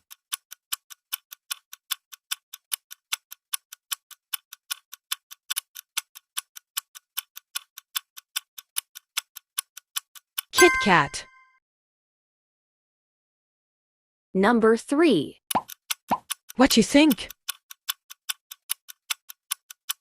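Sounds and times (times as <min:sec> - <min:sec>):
clock ticking: 0:00.0 - 0:11.2, 0:15.5 - 0:20.0.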